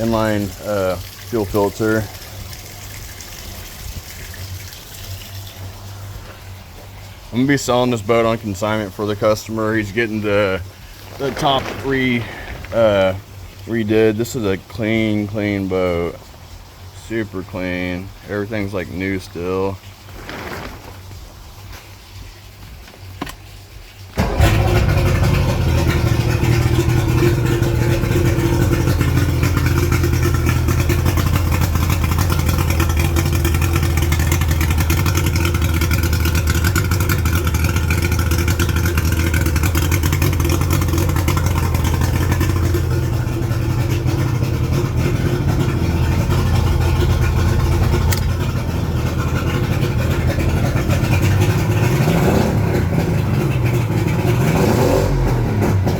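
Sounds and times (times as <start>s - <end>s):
outboard engine starting and idling: 0.0s - 55.9s.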